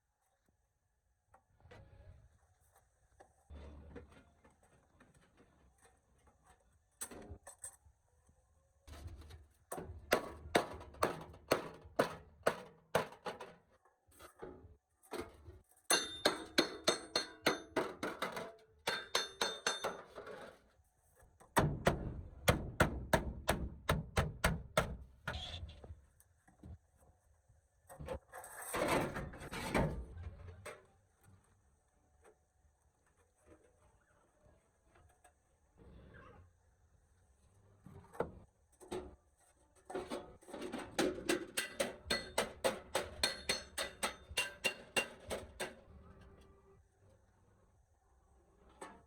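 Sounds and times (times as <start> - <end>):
hammer striking metal: 15.9 - 17.8, 18.9 - 20.0, 41.6 - 45.4.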